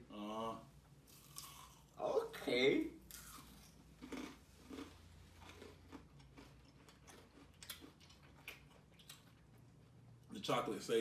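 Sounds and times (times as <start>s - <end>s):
chewing with small crunches: 1.1s - 2.0s, 3.1s - 10.3s.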